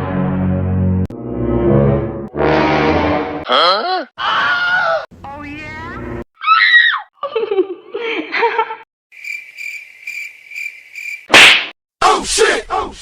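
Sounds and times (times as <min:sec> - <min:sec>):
crickets chirping: 0:09.1 - 0:11.3.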